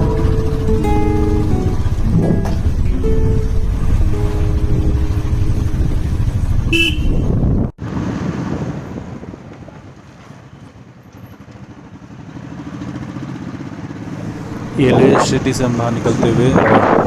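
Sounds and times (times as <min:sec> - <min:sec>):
motorcycle engine: 0:00.0 - 0:17.0
horn toot: 0:06.6 - 0:07.6.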